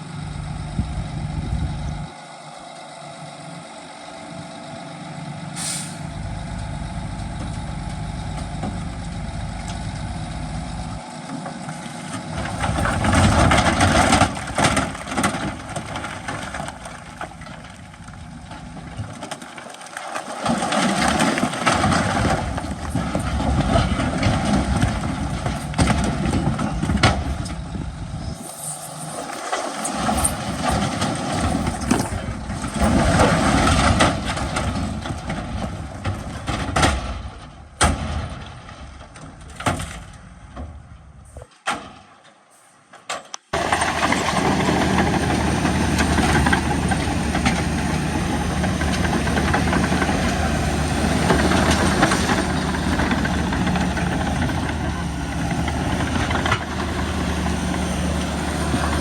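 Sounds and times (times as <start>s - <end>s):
loud diesel engine drone: 0.0s - 19.2s, 20.8s - 29.3s, 43.6s - 59.0s
heavy machinery noise with knocks: 7.1s - 19.8s, 20.4s - 28.1s, 29.7s - 42.1s, 43.0s - 59.0s.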